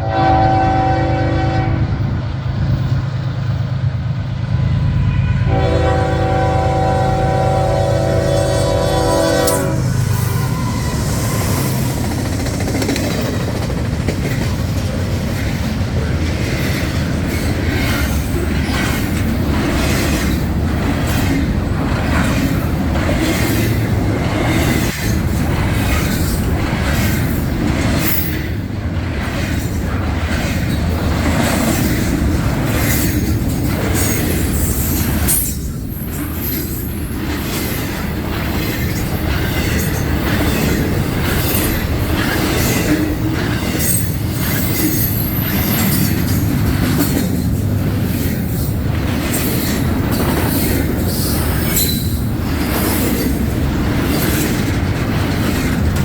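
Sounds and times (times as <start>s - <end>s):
train horn blast: 0.0s - 2.0s, 4.6s - 11.0s
train wheels clattering over rail joints: 10.5s - 56.0s
wheel squeal: 50.5s - 52.2s.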